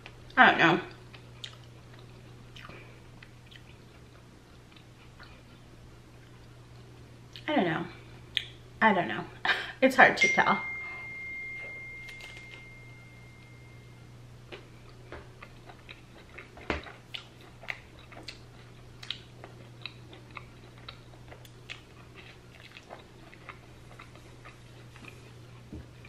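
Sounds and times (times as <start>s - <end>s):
person chewing cracker: 0.9s - 7.4s, 14.5s - 26.0s.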